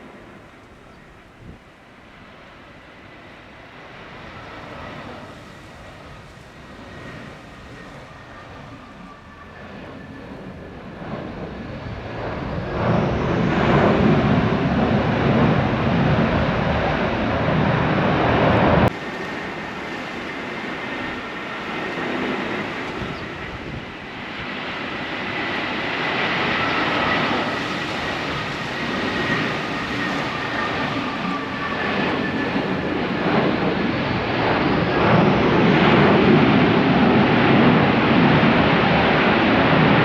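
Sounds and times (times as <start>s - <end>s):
high engine whine: 0.0s - 21.3s
jet engine roar: 0.0s - 40.0s.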